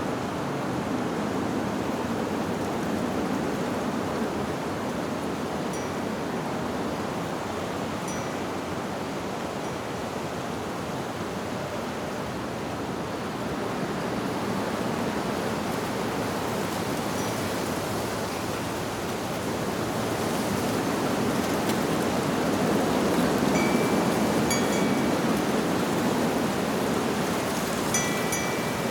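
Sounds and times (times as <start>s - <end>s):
wind through tree leaves: 0.0s - 28.9s
wind chime: 5.7s - 6.1s, 8.0s - 8.5s, 23.5s - 25.6s, 27.9s - 28.9s.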